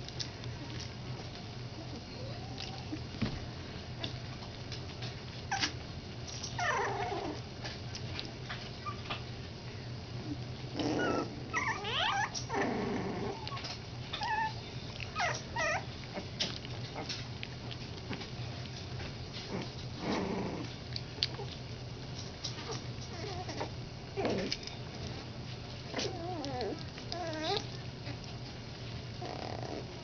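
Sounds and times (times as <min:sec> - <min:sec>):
steady low hum: 0:00.0 - 0:30.0
puppies whining and squeaking: 0:01.8 - 0:03.2, 0:05.4 - 0:07.4, 0:08.7 - 0:09.3, 0:10.3 - 0:17.3, 0:22.5 - 0:25.2, 0:25.9 - 0:28.3.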